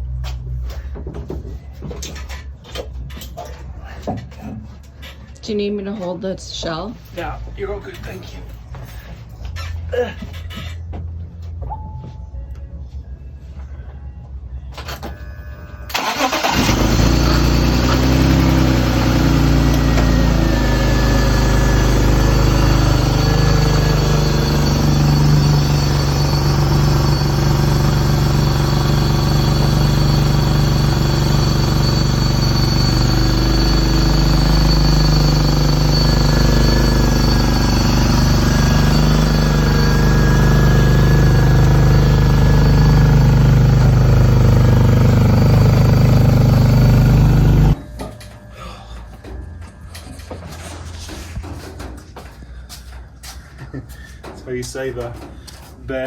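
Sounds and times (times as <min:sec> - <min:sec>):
engine starting and running: 0:14.7 - 0:51.5.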